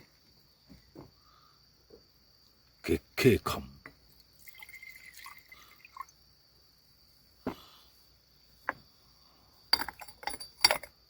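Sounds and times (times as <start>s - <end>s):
insects trilling: 0.0s - 11.0s
hard objects knocking and clattering: 9.8s - 11.0s.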